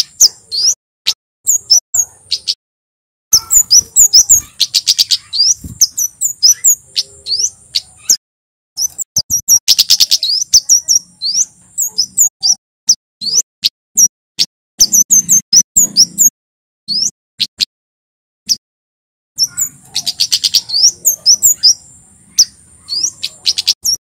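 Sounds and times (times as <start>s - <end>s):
bird chirping and rattling: 1.5s - 2.6s, 3.3s - 8.2s, 8.8s - 13.4s, 14.8s - 16.3s, 16.9s - 17.6s, 19.4s - 24.0s.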